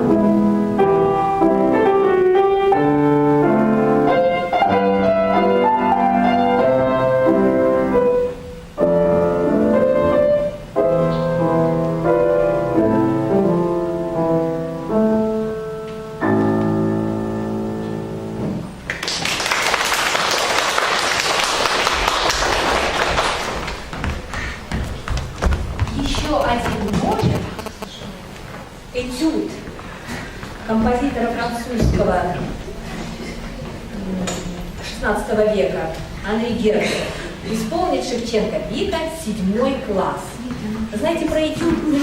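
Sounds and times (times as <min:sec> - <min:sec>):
solo piano: 0:00.0 - 0:18.9
audience applause: 0:18.9 - 0:25.8.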